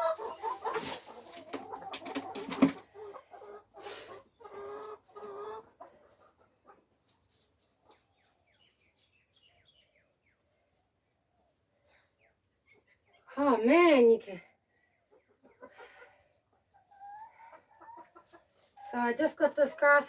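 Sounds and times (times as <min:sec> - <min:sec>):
hens clucking and squawking: 0:00.0 - 0:09.6, 0:14.5 - 0:20.0.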